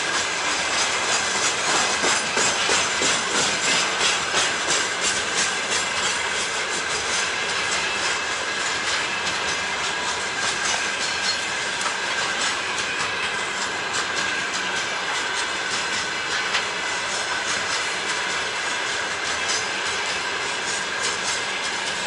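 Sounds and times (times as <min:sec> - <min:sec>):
freight train wheels clicking: 0:00.0 - 0:22.0.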